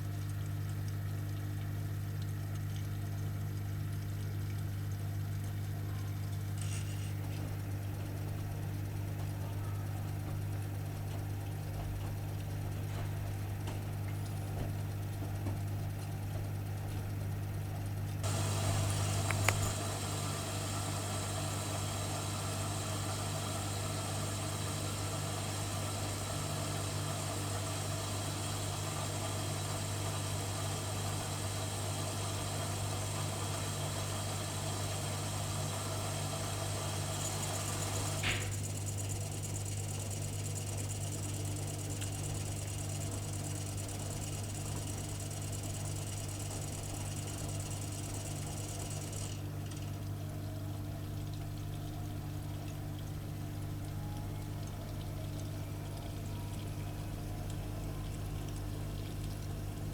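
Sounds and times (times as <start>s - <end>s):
washing machine humming: 0.0s - 59.9s
hissing water rush: 18.2s - 38.3s.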